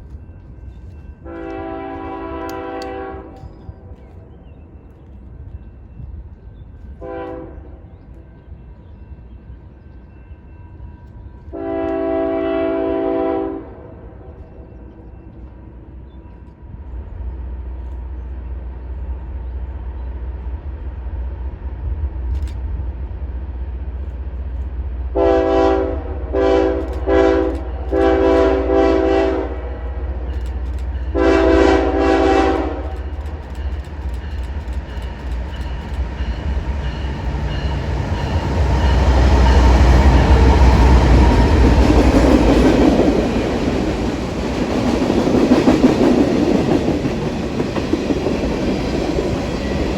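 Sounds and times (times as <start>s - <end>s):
diesel locomotive engine rumble: 0.0s - 49.9s
train wheel rumble and rail clatter: 0.0s - 49.9s
train horn blasts: 1.2s - 3.7s, 7.0s - 7.9s, 11.5s - 14.4s, 25.2s - 30.2s, 31.0s - 33.2s.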